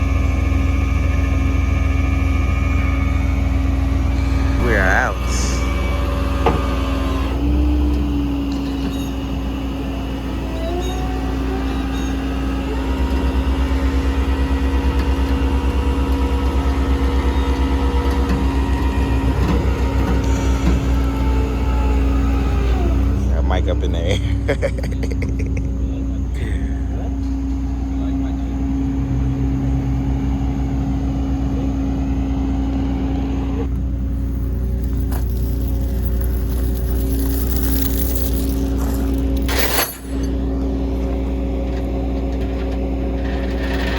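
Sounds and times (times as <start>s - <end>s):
steady whine: 0.0s - 7.4s
vehicle engine throbbing: 0.0s - 8.6s, 9.2s - 39.5s.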